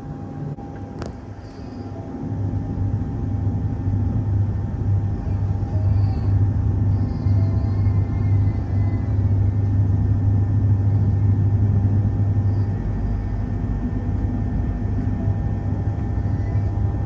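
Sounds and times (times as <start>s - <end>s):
train hum and rumble: 0.0s - 17.0s
faint whining tones: 4.8s - 17.0s.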